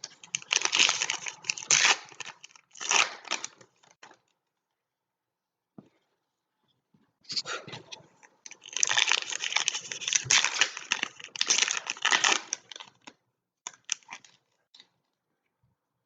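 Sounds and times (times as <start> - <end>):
foil wrapper crinkling and tearing: 0.0 - 4.2, 8.5 - 13.1, 13.7 - 14.4.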